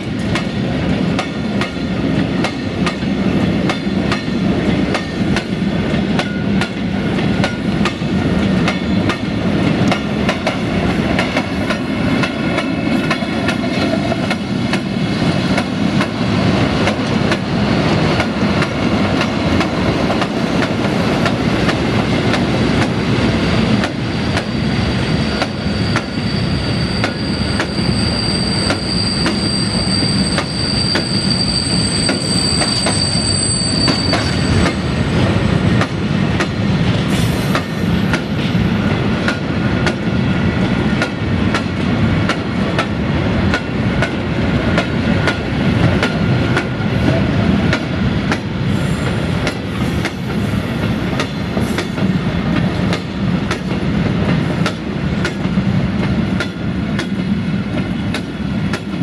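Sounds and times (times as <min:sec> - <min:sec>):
freight train rolling past: 0:00.0 - 0:59.0
high-pitched wheel squeal: 0:24.5 - 0:34.8.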